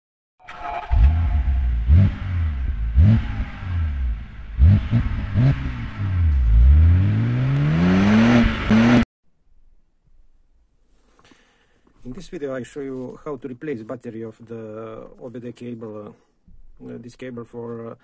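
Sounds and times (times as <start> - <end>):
car engine revving: 0.4 - 9.0.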